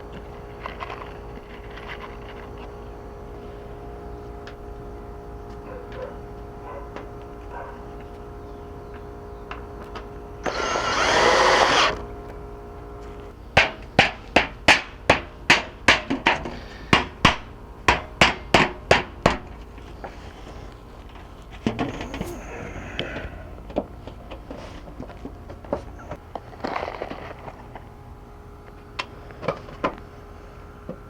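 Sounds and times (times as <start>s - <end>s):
loud burst of noise: 10.4s - 12.0s.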